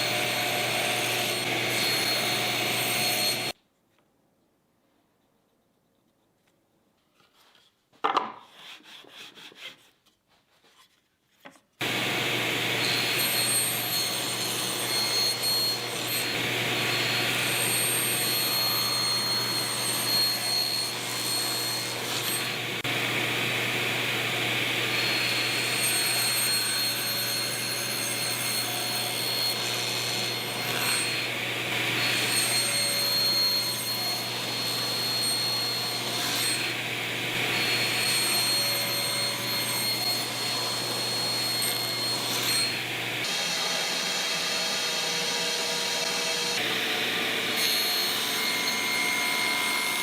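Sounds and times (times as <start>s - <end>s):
power tool cutting wood: 0.0s - 3.6s, 11.8s - 50.0s
knocks and rustles of handling: 10.0s - 11.8s.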